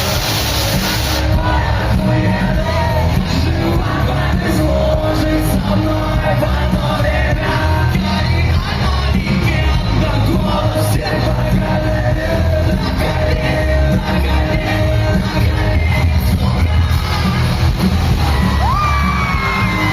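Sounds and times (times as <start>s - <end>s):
heavy bass line: 0.0s - 19.9s
live rock band playing: 0.0s - 19.9s
crowd shouting: 1.2s - 4.8s, 17.6s - 19.9s
person singing: 1.2s - 19.9s.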